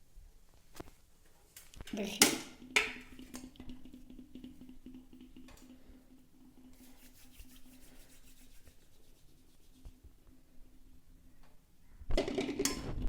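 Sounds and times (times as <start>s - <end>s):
hands rolling dough: 2.6s - 11.6s.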